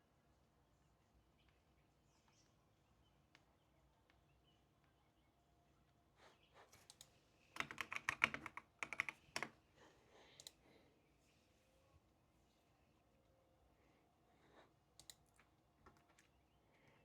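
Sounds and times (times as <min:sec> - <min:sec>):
typing on computer keyboard: 0:06.8 - 0:09.6.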